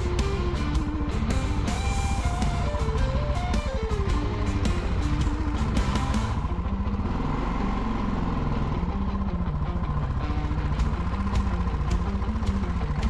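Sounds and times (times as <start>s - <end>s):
background music: 0.0s - 7.5s
motorcycle engine running: 0.0s - 13.0s.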